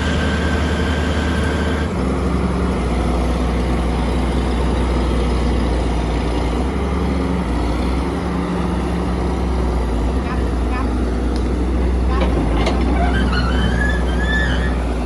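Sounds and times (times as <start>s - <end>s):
heavy diesel engine droning: 0.0s - 15.0s.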